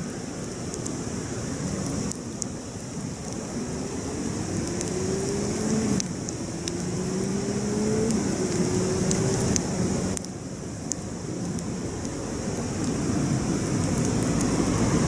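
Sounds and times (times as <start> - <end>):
campfire crackling and popping: 0.0 - 15.0
vehicle engine shifting gears: 3.3 - 10.2, 12.4 - 15.0.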